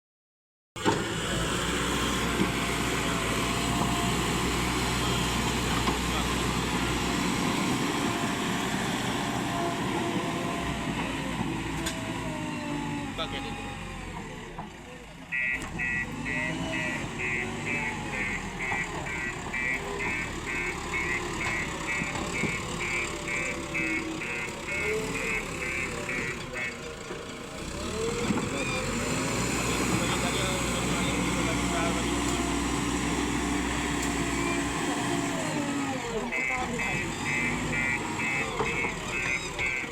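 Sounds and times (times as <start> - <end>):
vehicle engine running: 14.4 - 39.9
high electronic beeps: 15.4 - 26.7, 36.3 - 39.9.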